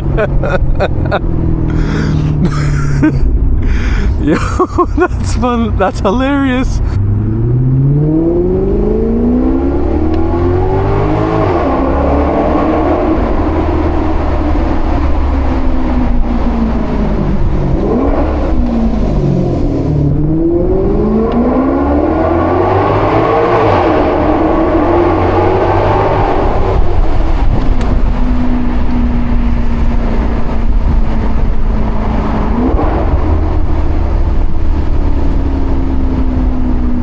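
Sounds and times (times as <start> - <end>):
car engine accelerating hard: 0.0 - 37.0.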